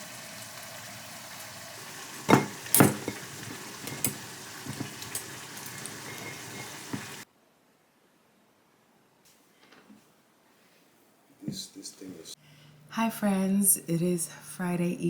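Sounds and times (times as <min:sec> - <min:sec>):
pasta sizzling in a pan: 0:00.0 - 0:07.3
utensil clinking in a pan: 0:02.2 - 0:07.2.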